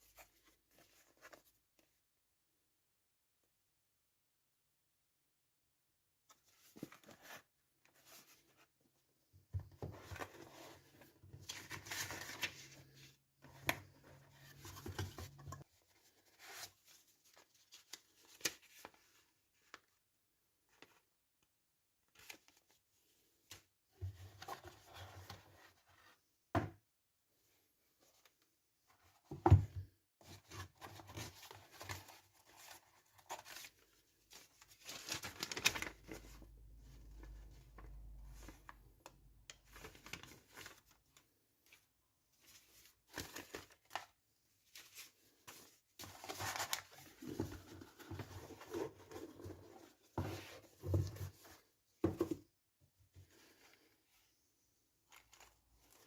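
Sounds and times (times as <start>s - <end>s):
wrapping rustling and tearing: 34.5s - 36.3s.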